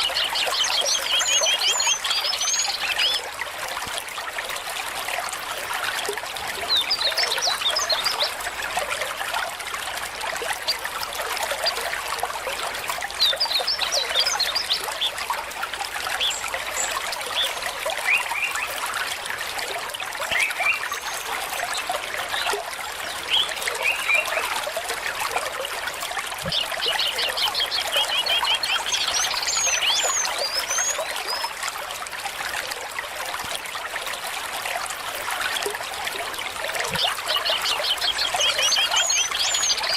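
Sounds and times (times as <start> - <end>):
stream trickling over stones: 0.0 - 39.9
birds chirping and trilling: 36.9 - 39.9.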